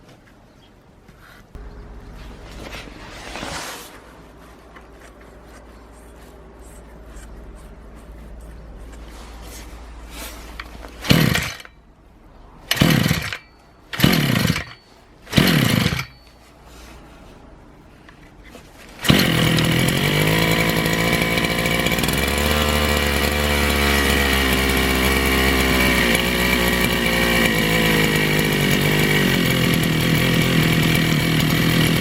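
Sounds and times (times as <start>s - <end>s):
small petrol engine revving: 6.2s - 11.8s, 12.6s - 16.2s, 18.6s - 32.0s.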